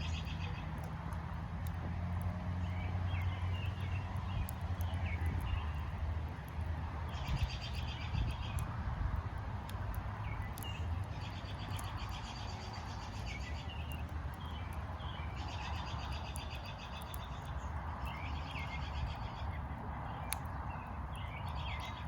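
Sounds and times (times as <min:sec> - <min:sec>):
wood fire crackling: 0:00.0 - 0:22.0
birds chirping: 0:10.2 - 0:22.0.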